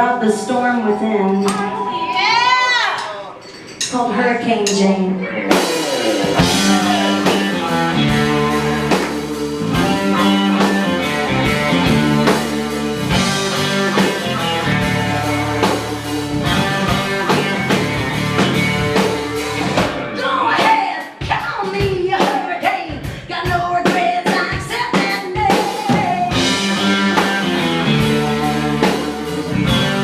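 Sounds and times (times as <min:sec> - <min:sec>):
drums: 0:00.0 - 0:30.0
live rock band playing: 0:04.7 - 0:30.0
electric guitar: 0:05.0 - 0:20.7, 0:25.8 - 0:30.0.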